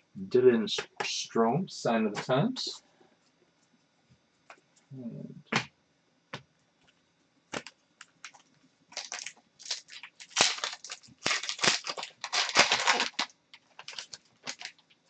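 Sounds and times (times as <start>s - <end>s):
foil wrapper crinkling and tearing: 7.6s - 15.0s.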